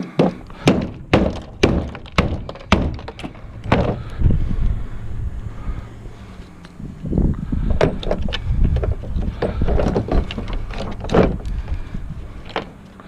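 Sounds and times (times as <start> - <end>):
wood knocking on metal: 0.0 - 4.2, 7.7 - 11.8.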